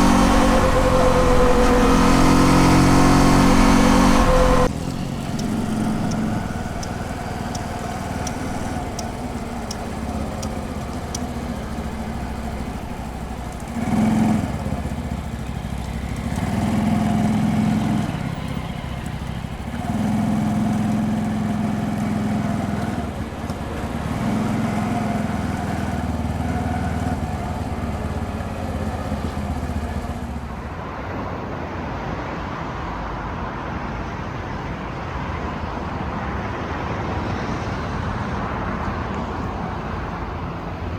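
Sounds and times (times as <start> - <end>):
motorcycle engine revving: 0.0 - 30.5
road and wind noise: 0.0 - 40.9.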